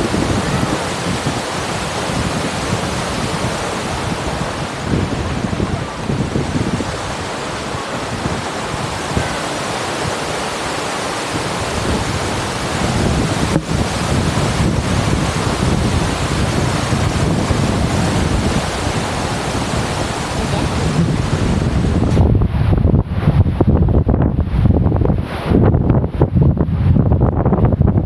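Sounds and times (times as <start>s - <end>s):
wind buffeting a microphone: 0.0s - 28.0s.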